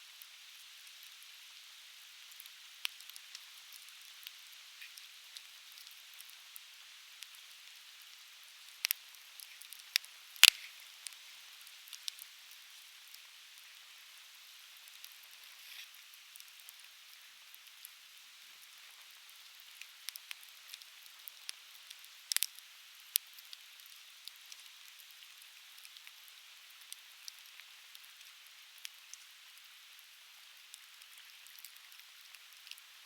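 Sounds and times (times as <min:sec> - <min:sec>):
firewood crackling and popping: 0:08.7 - 0:11.2, 0:11.8 - 0:13.8, 0:19.5 - 0:26.1, 0:30.7 - 0:32.9.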